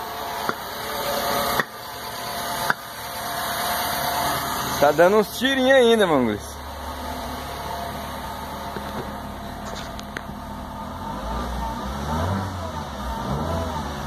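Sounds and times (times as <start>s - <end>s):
car engine running rough: 0.0s - 14.0s
engine misfire pops: 0.4s - 0.7s, 1.4s - 1.9s, 2.6s - 2.9s, 8.6s - 10.6s.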